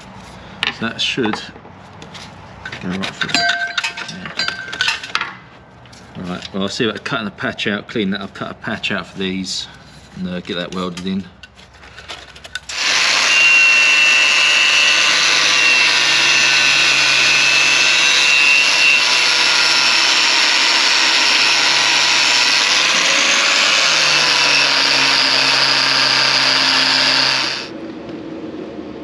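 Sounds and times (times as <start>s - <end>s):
angle grinder grinding metal: 12.6s - 27.7s.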